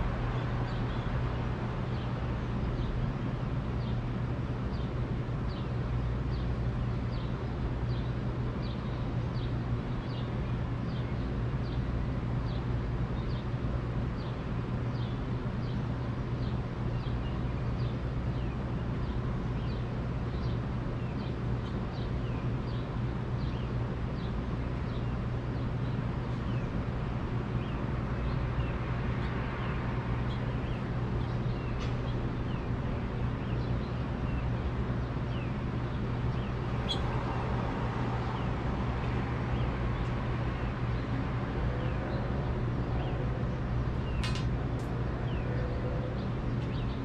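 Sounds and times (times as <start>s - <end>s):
small bird chirping: 35.3s - 37.3s.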